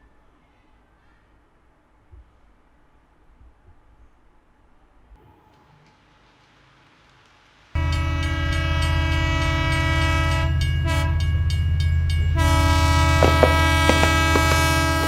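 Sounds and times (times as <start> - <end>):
train horn chord: 7.8 - 11.5, 12.2 - 15.0
train rumble: 7.8 - 15.0.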